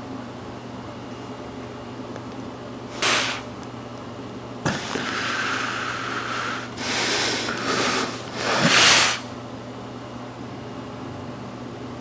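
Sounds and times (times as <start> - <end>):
man breathing forcefully: 2.9 - 3.5, 4.7 - 9.4.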